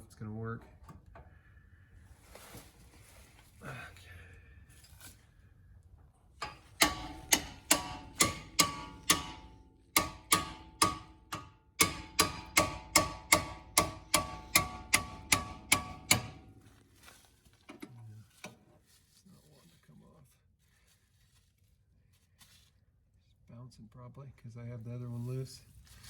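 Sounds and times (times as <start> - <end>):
hammer striking metal: 6.4 - 16.6.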